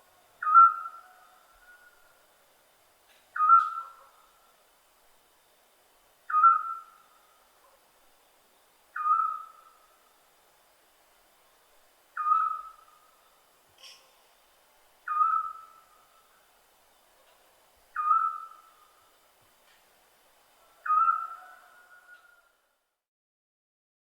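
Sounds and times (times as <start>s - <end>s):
owl short whistled call: 3.4s - 4.0s, 9.0s - 9.6s, 15.1s - 15.8s, 18.0s - 18.6s, 20.8s - 22.4s.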